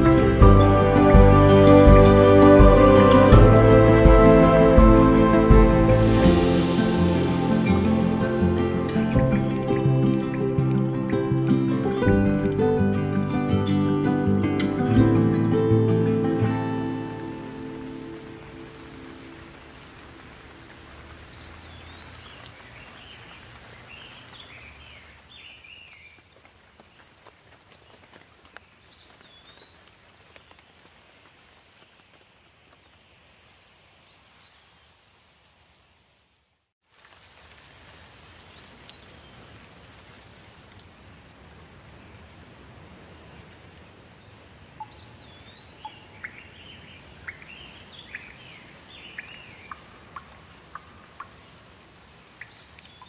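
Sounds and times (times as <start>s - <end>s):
soft music: 0.0s - 19.3s
steady rain: 0.0s - 53.0s
birds chirping: 17.2s - 19.8s, 44.8s - 51.6s.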